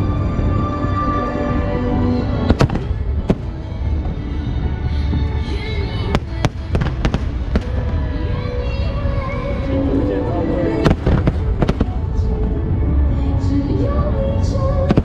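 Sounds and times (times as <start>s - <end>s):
fireworks rumble: 0.0s - 15.0s
music: 0.0s - 15.0s
sharp firework bangs: 2.5s - 3.6s.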